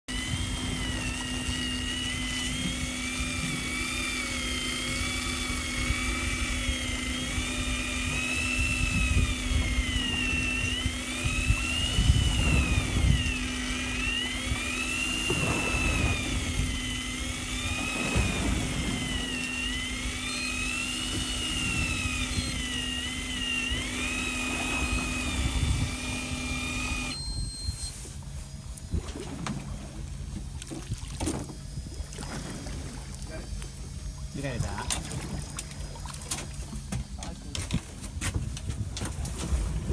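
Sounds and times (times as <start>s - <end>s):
electric motor whine: 0.1s - 37.8s
low hum and rumble: 0.1s - 39.9s.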